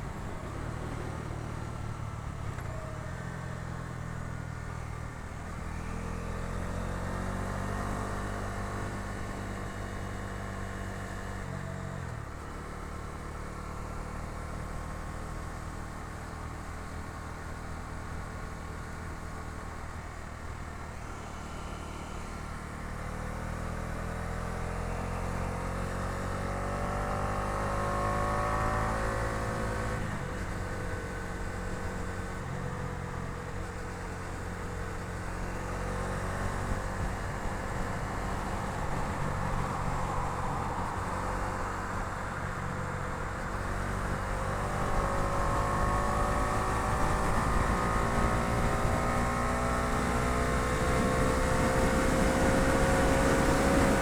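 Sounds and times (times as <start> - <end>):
motorcycle engine accelerating: 21.3 - 54.0.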